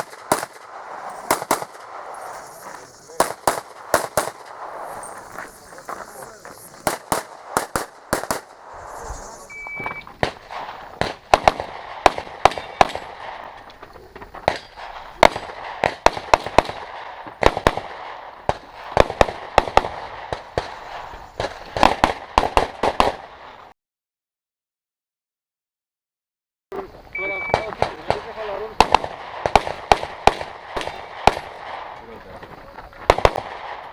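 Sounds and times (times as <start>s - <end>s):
handgun shots: 0.0s - 9.3s
short electronic beep: 8.8s - 10.1s, 27.2s - 27.6s.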